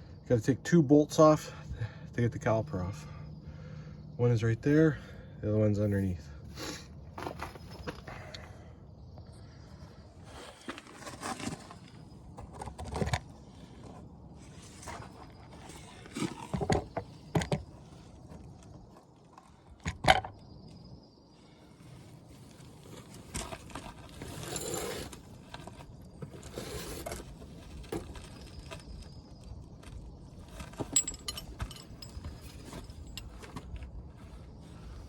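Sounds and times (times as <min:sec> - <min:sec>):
tools rattling and rummaging: 0:07.2 - 0:08.3, 0:22.8 - 0:34.4
metal tools clinking: 0:24.2 - 0:25.2, 0:30.5 - 0:33.8.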